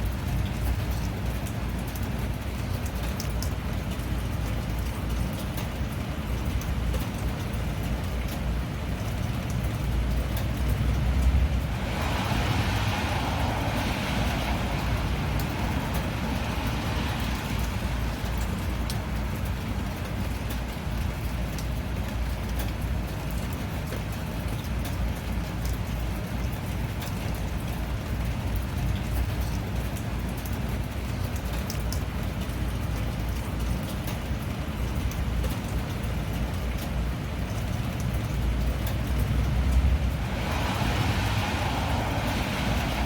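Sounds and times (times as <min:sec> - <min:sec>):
steady rain: 0:00.0 - 0:43.0
tyres hissing on wet road: 0:00.1 - 0:23.0, 0:36.4 - 0:43.0
low rumble: 0:39.0 - 0:43.0.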